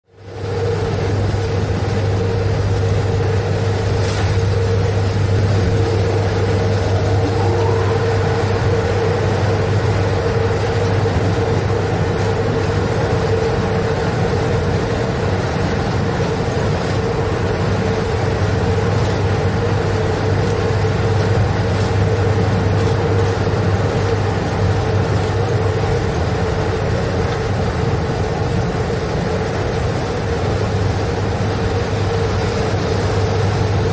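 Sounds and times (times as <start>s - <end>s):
mid-pitched hum: 0.1s - 33.9s
train rumbling on track: 0.1s - 33.9s
faint rising tone: 5.5s - 9.8s.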